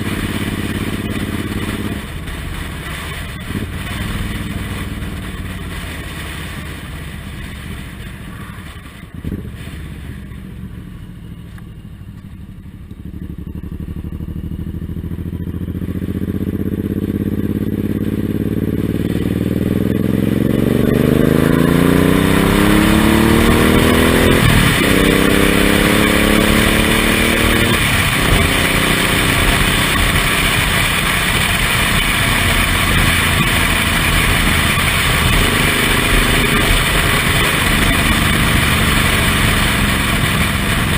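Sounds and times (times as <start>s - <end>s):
wind noise: 0.0s - 9.9s, 20.6s - 40.9s
motorcycle engine accelerating: 0.0s - 40.9s.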